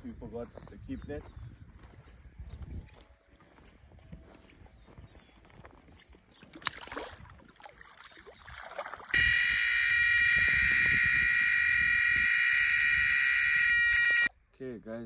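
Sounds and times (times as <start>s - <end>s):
high-pitched bite alarm tone: 9.2s - 14.3s.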